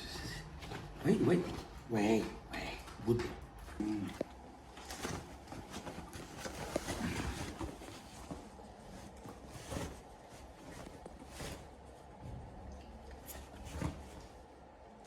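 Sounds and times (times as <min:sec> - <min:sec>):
soft rustling: 0:03.2 - 0:15.0.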